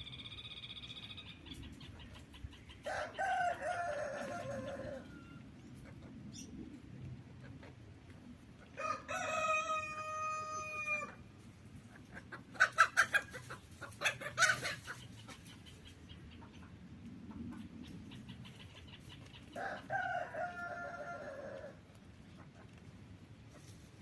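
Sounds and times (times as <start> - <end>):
rooster crowing: 2.8 - 5.4, 8.8 - 11.2, 19.6 - 21.8.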